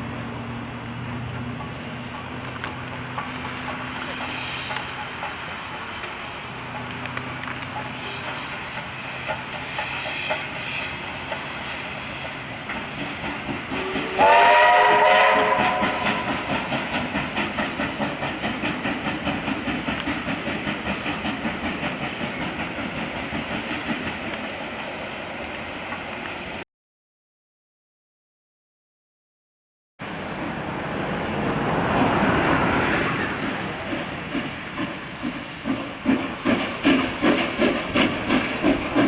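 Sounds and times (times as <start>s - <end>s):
steam locomotive whistle: 13.8s - 16.3s
locomotive exhaust chuffing: 33.1s - 39.0s.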